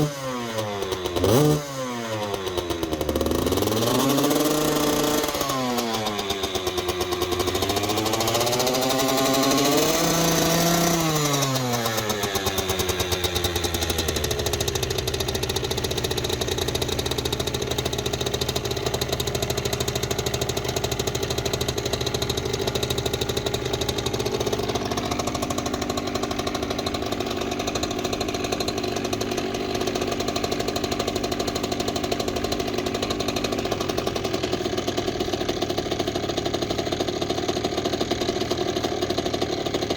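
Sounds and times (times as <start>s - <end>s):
two-stroke engine revving and idling: 0.0s - 39.9s.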